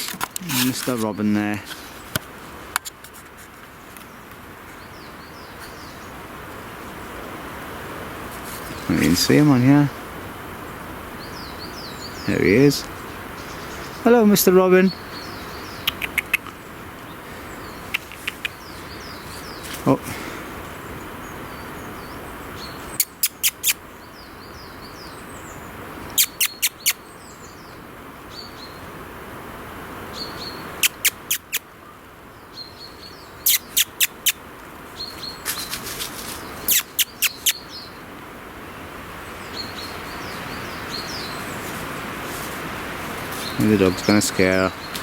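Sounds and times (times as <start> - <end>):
robin ticking calls: 10.6 - 28.9, 30.1 - 38.2, 39.1 - 41.7, 43.3 - 45.0
thin high chirps: 36.6 - 37.7.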